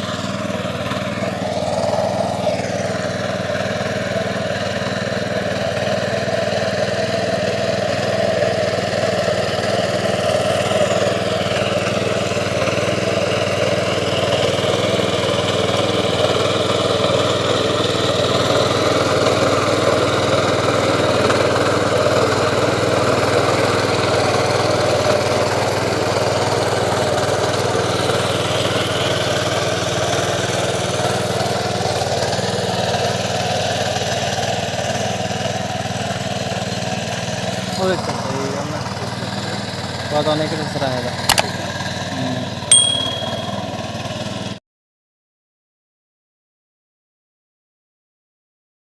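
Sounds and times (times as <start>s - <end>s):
tractor engine running: 0.0s - 18.8s.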